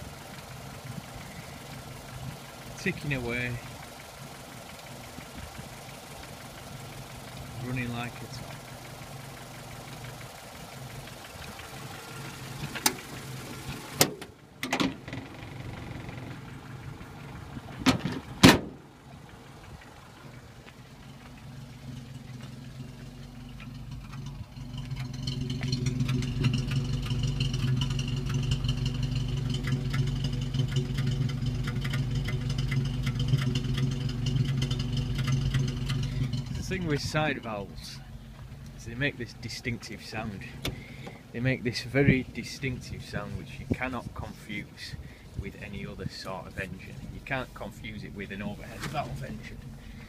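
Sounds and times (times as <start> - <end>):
car engine idling: 0.0 - 50.0
sharp clunks: 14.0 - 16.2, 17.8 - 18.8.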